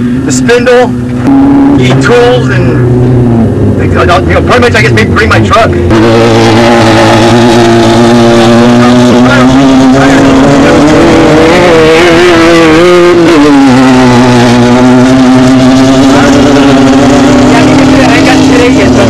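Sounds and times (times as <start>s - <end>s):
race car engine running loud: 0.0s - 19.0s.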